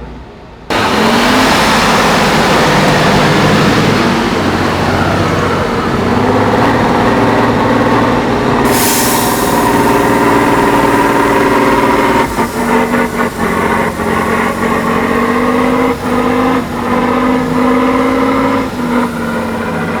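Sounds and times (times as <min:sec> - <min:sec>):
diesel truck engine revving: 0:00.7 - 0:20.0
short burst of hiss: 0:08.7 - 0:12.7.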